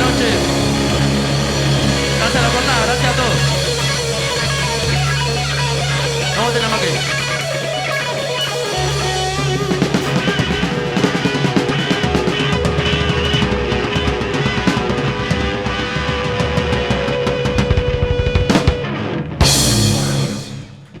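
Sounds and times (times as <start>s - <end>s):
cymbal crash: 0.0s - 12.5s, 19.4s - 21.0s
rock music: 0.0s - 21.0s.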